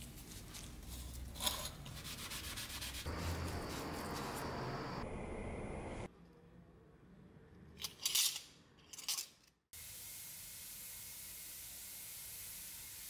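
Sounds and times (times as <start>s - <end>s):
sanding noise: 1.9s - 4.8s.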